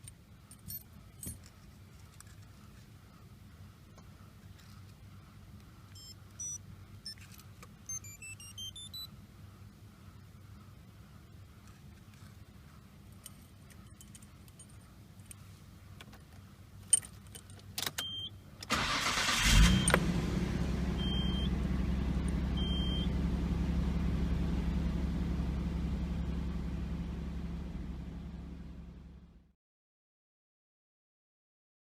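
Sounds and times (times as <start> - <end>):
short high beeps: 7.9 - 9.1
car key clicks and rattles: 16.8 - 20.0
car starter cranking: 18.6 - 21.5
car engine idling: 18.7 - 29.5.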